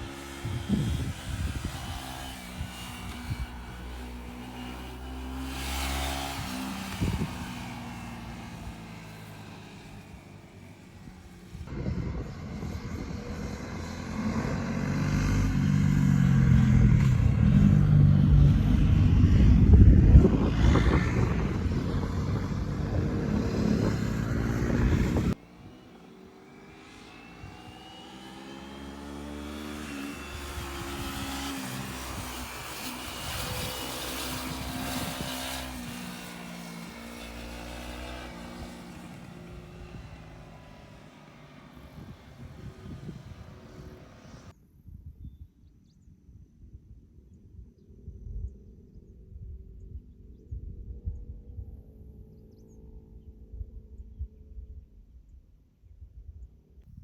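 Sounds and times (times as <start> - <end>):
loud engine revving: 0.0 - 11.8, 12.5 - 44.5
vehicle engines running: 0.0 - 44.5.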